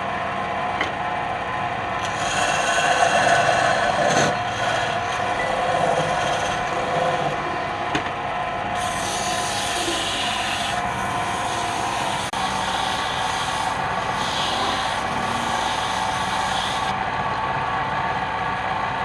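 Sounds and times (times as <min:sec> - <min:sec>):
lathe motor hum: 0:01.1 - 0:17.0
tool scraping wood on lathe: 0:02.0 - 0:07.8, 0:08.7 - 0:17.0.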